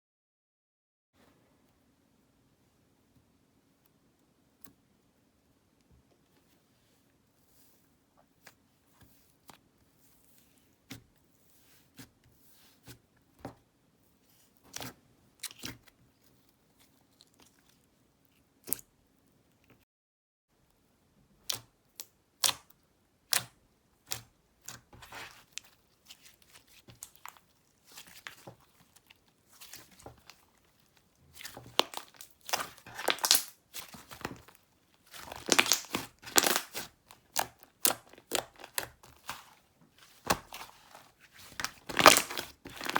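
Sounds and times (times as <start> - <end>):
slime squeezed by hand: 31.4 - 39.5, 40.1 - 42.9.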